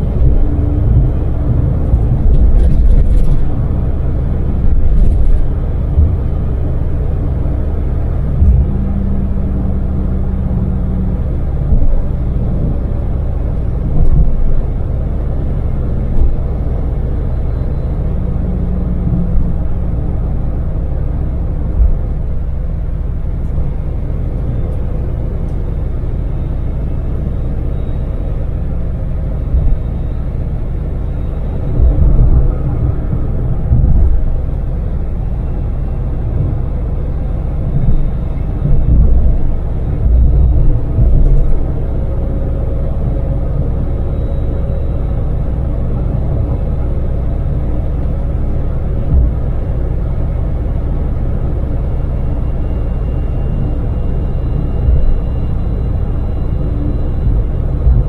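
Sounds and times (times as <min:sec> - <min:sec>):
van engine and tyres rumbling: 0:00.0 - 0:58.0
low thumps: 0:08.2 - 0:09.9, 0:31.7 - 0:35.2, 0:37.7 - 0:43.2.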